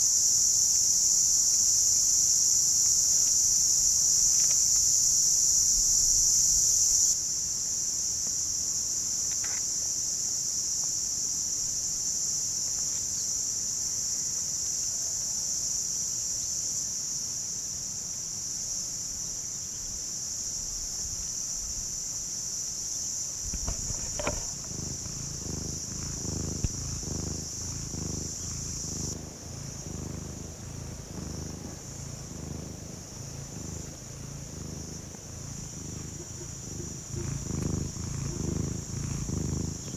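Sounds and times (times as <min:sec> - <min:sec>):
insects chirring: 0:00.0 - 0:39.9
cat purring: 0:23.5 - 0:39.9.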